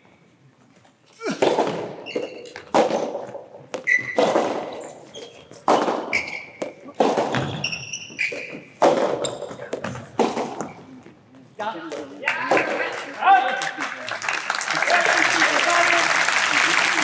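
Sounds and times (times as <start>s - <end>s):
tennis racket striking ball: 1.4s - 10.8s
shoe squeaks on court: 1.6s - 2.7s, 3.8s - 10.9s.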